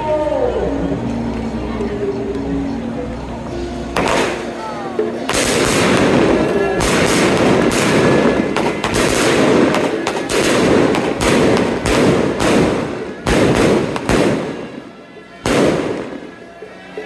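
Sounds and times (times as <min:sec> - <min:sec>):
firecrackers crackling: 0:03.8 - 0:17.0
firecracker bangs: 0:04.0 - 0:04.7, 0:05.3 - 0:16.4.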